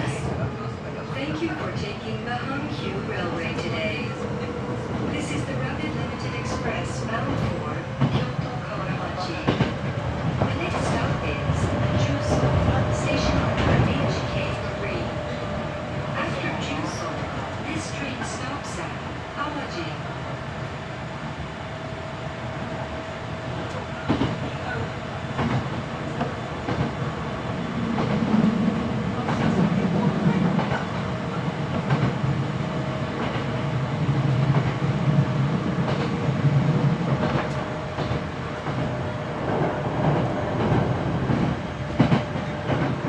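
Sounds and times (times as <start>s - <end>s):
train running rumble: 0.0s - 43.0s.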